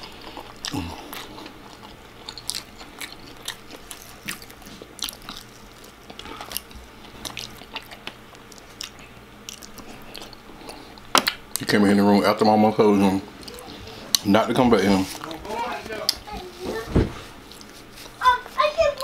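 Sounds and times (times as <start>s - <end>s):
person chewing crunchy food: 0.0s - 11.7s, 17.5s - 18.2s.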